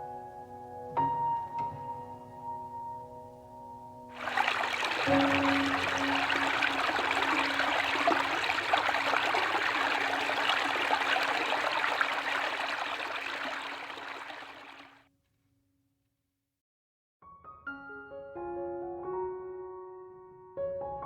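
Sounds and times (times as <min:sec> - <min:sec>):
stream water flowing and splashing: 0:04.2 - 0:15.0.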